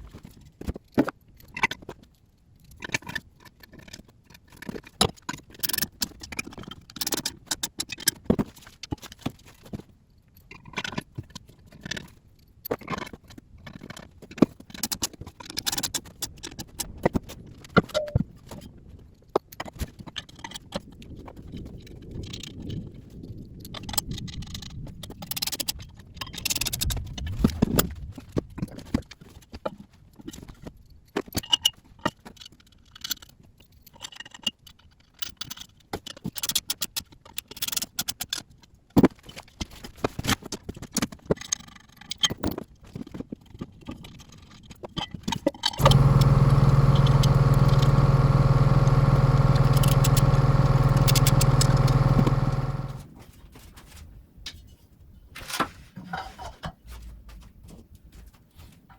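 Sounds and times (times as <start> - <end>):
loud steady hum: 45.8 - 53.0.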